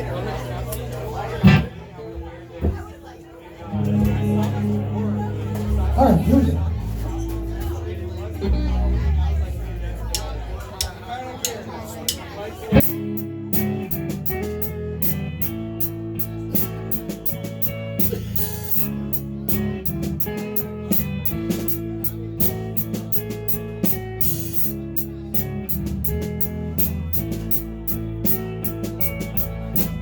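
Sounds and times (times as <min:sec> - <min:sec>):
rock band playing: 0:01.4 - 0:02.0, 0:03.7 - 0:11.0, 0:12.0 - 0:30.0
cymbal strokes: 0:12.8 - 0:19.3.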